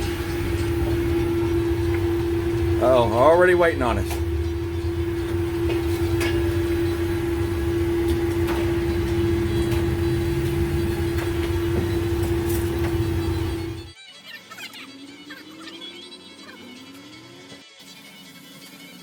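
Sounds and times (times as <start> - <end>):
kitchen equipment humming: 0.0 - 14.0.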